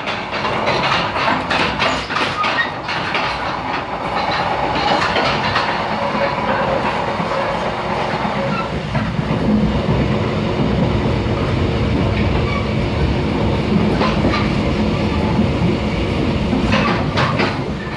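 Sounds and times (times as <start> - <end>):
clicks over rail joints: 0.0 - 7.4, 16.5 - 17.9
train wheels rumbling on rails: 0.0 - 17.9.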